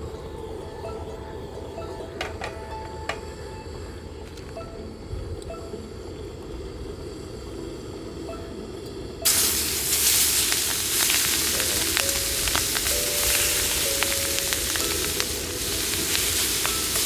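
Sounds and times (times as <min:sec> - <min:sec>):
prawns sizzling in hot oil: 0:09.2 - 0:17.0.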